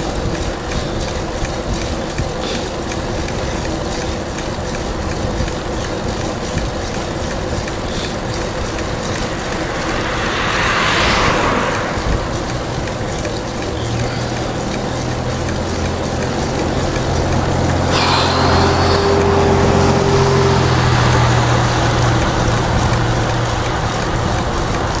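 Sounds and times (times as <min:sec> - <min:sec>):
traffic rumble: 0:00.0 - 0:25.0
vehicle engine low hum: 0:00.0 - 0:25.0
car passing: 0:06.8 - 0:25.0.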